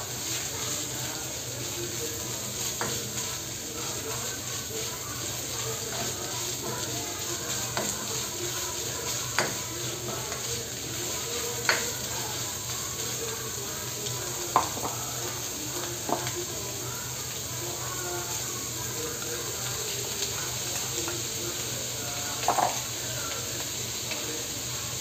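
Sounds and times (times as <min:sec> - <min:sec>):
spatula scraping wok: 0:00.0 - 0:24.7
chicken and onion sizzling: 0:00.0 - 0:25.0
spatula tapping pan: 0:00.3 - 0:16.6, 0:22.2 - 0:24.2.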